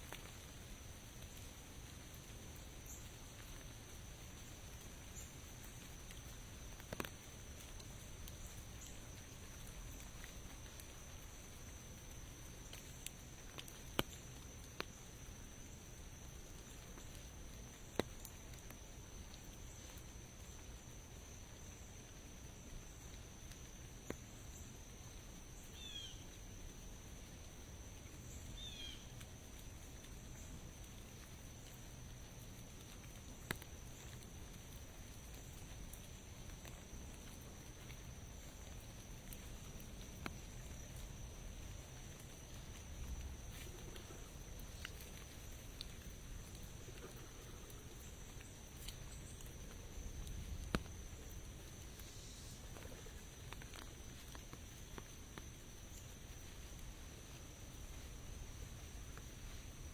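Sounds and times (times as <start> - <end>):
rain pattering: 0.0 - 59.9
raindrops ticking: 0.0 - 59.9.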